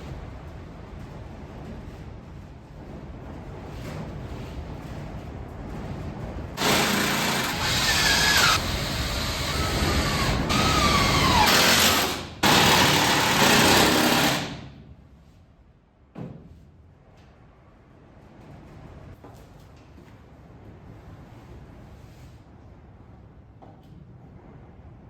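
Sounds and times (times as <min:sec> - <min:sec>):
power drill running: 0:06.6 - 0:14.6.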